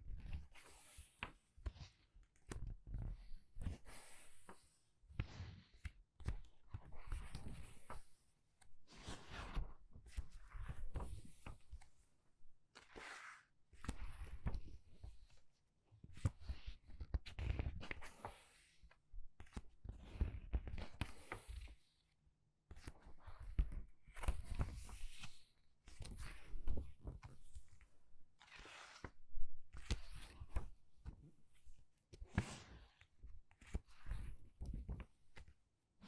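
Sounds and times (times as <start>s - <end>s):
book pages turning: 9.0s - 9.8s, 12.8s - 14.7s, 28.4s - 30.8s, 31.6s - 35.5s.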